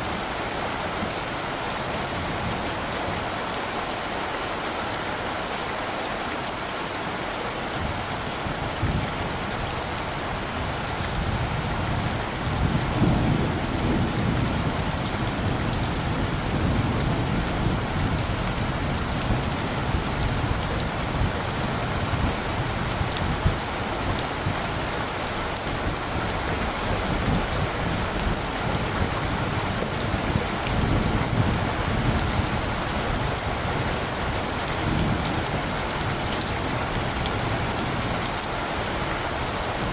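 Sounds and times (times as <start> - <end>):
rain pattering on surfaces: 0.0 - 39.9
low thunder rumble: 7.8 - 24.8, 25.6 - 38.5.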